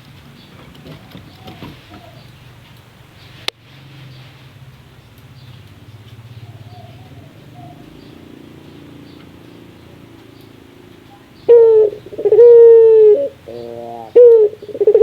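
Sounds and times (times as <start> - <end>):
dove rolling call: 0.4 - 2.6, 5.8 - 15.0.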